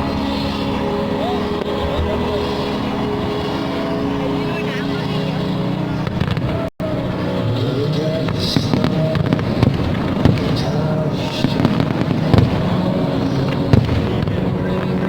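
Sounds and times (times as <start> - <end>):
fireworks hissing crackle: 0.0 - 6.6, 7.5 - 15.0
fireworks bursting: 0.0 - 15.0
music: 0.0 - 15.0.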